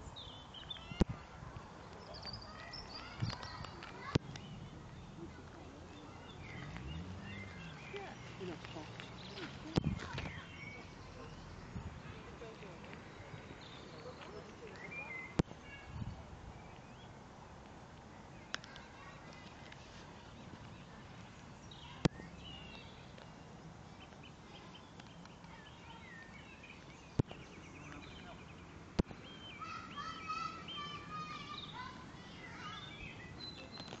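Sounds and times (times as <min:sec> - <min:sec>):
faint outdoor background: 0:00.0 - 0:34.0
small birds chirping: 0:00.0 - 0:34.0
sharp clicks: 0:17.6 - 0:19.8.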